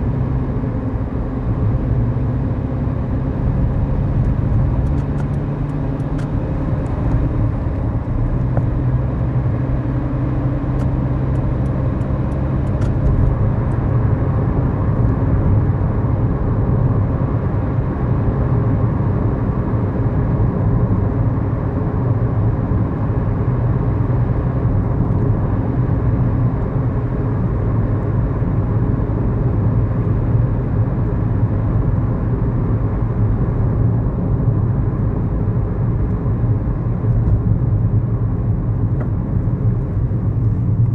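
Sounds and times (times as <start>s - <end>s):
tyre and road noise: 0.0s - 15.8s
car engine hum: 0.0s - 40.9s.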